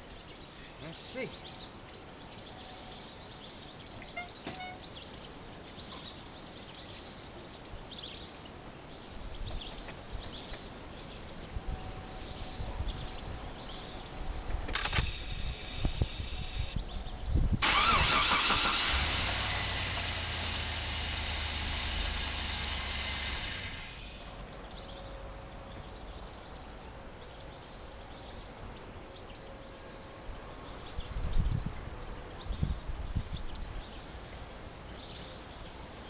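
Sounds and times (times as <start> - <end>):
car engine cranking and starting: 14.7 - 16.8, 17.6 - 24.4
car engine running: 18.8 - 24.4.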